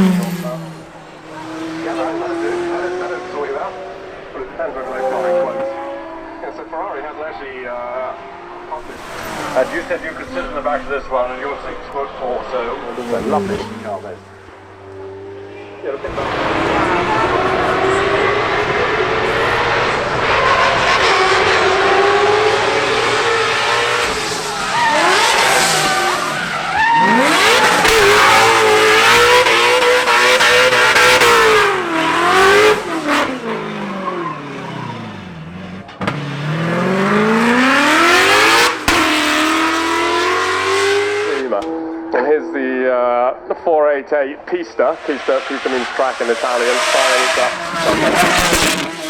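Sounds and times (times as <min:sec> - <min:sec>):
car engine revving hard: 0:00.0 - 0:43.7, 0:44.7 - 0:49.0.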